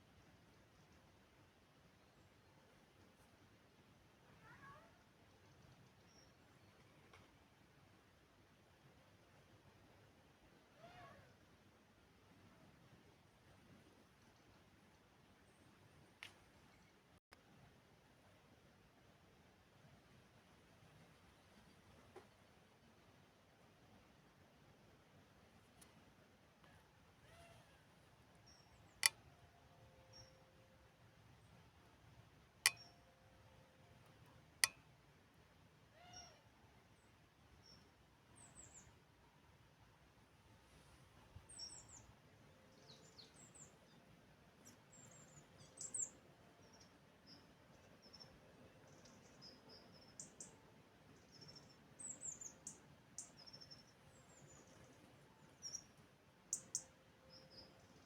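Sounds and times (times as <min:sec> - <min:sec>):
sharp clicks with ringing tone: 0:32.7 - 0:33.0
small birds chirping: 0:44.6 - 0:50.6, 0:51.2 - 0:58.0.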